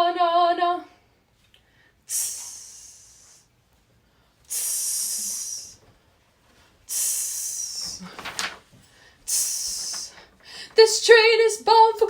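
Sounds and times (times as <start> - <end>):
person making hissing vocal percussion: 2.1 - 3.5, 4.5 - 5.8, 6.9 - 8.1, 9.3 - 10.2.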